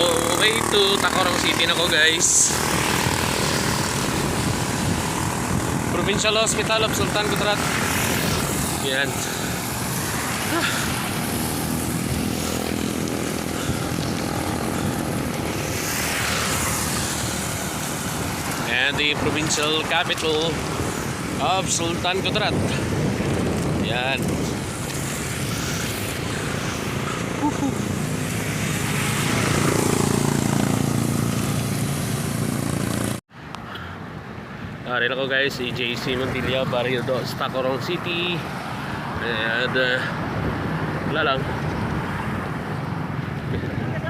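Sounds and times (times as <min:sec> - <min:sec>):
vehicle engine droning close by: 0:00.0 - 0:21.5, 0:22.4 - 0:33.2
wind buffeting microphone: 0:00.0 - 0:33.2, 0:38.4 - 0:44.0.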